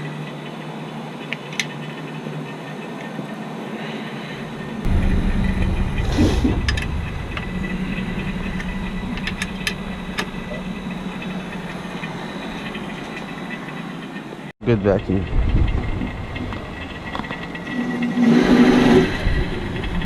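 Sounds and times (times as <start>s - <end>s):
vacuum pump humming: 4.4s - 13.7s
low rumble: 4.5s - 13.5s, 14.7s - 20.0s.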